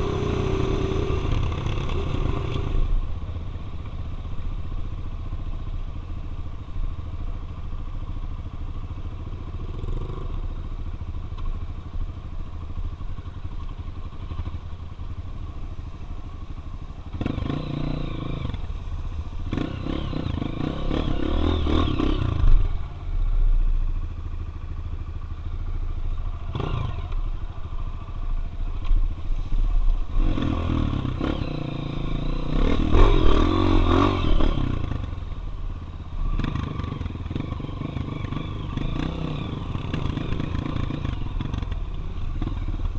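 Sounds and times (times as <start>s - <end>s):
dirt bike engine revving: 0.0s - 2.8s, 17.1s - 18.6s, 19.5s - 22.8s, 26.4s - 27.2s, 30.1s - 35.2s, 36.2s - 41.8s.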